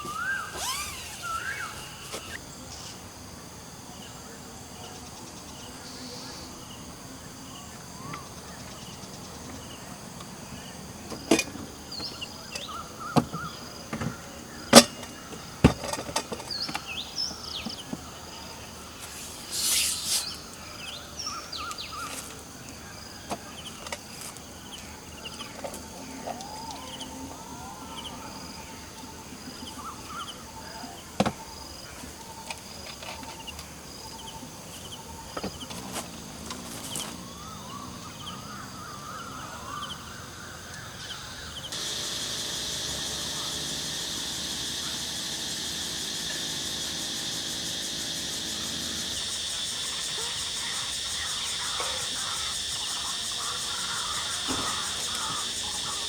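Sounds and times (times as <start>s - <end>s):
birds calling: 0.0s - 3.0s, 7.3s - 56.0s
insects buzzing: 0.0s - 56.0s
knocks and clicks of camp gear: 11.1s - 17.0s
brief rustle: 19.0s - 20.6s.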